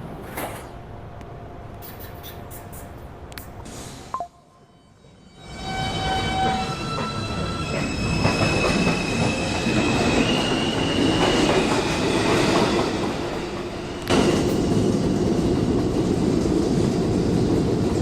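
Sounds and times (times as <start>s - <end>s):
rumble of wheels on rail: 5.3s - 18.0s.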